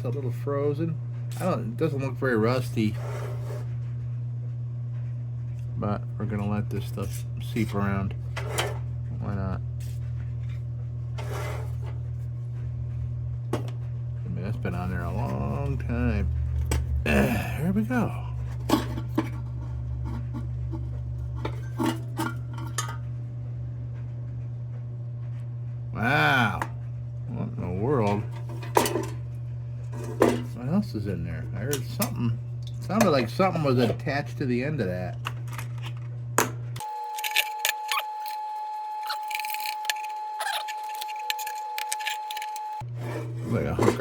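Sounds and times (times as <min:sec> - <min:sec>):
steady low hum: 0:00.0 - 0:44.0
metal parts clinking and scraping: 0:35.2 - 0:36.1, 0:39.1 - 0:44.0.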